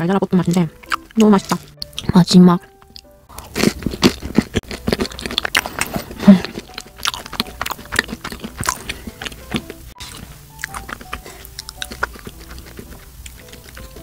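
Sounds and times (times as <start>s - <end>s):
chewing and wet mouth clicks: 0.5s - 14.0s.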